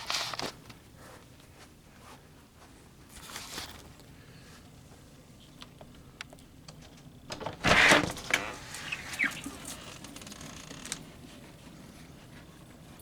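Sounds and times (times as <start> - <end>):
door clicks: 5.6 - 11.1.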